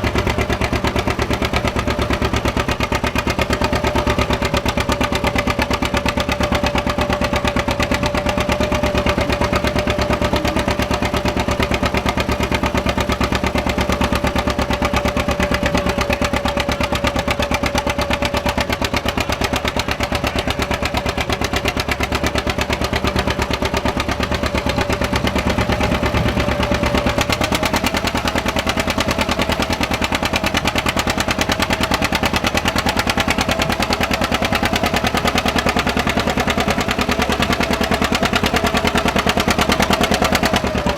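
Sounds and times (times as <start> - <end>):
steady whine: 0.0 - 35.0
tractor engine popping: 0.0 - 40.9.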